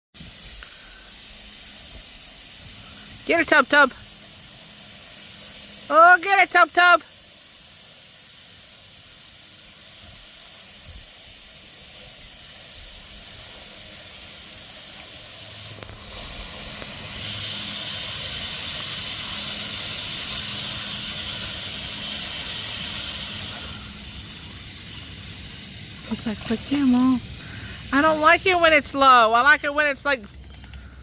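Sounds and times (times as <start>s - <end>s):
water spraying from garden hose: 0.1s - 31.0s.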